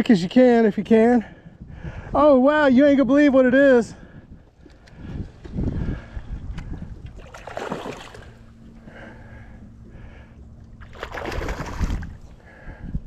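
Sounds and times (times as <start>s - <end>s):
wind rumble on microphone: 1.3s - 13.0s
fish splashing in water: 7.1s - 8.5s, 10.8s - 12.2s.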